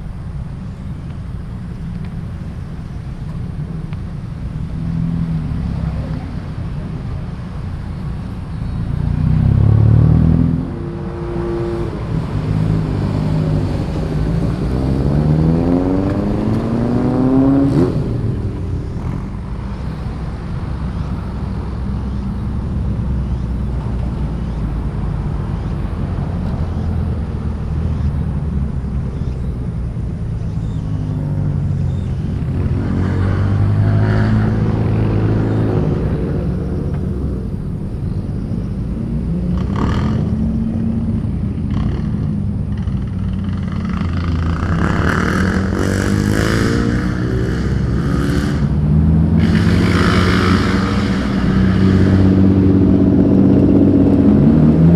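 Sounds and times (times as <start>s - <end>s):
car engines rumbling: 0.0s - 54.9s
engine revving up: 8.9s - 22.6s, 30.4s - 37.7s, 39.2s - 54.9s.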